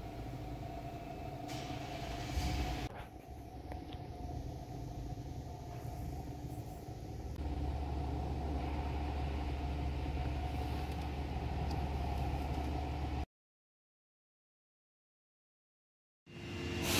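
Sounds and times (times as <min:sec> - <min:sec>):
low mechanical rumble: 0:00.0 - 0:13.3.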